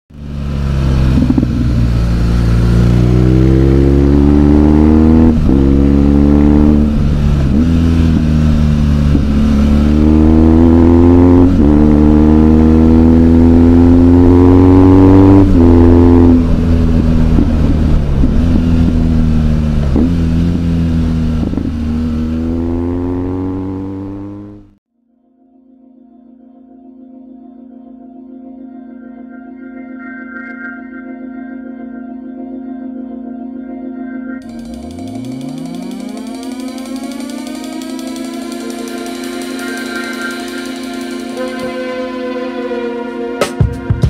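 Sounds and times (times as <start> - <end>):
motorcycle engine shifting gears: 0.1 - 24.8, 34.4 - 44.0.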